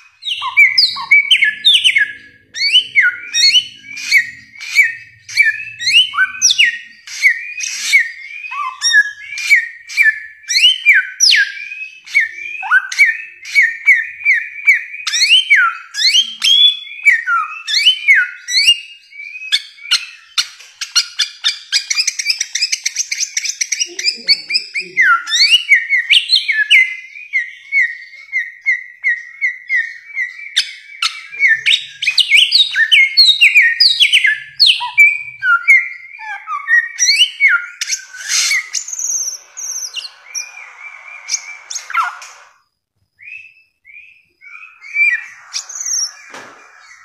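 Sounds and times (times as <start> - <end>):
bird whistling song: 0.0 - 47.0.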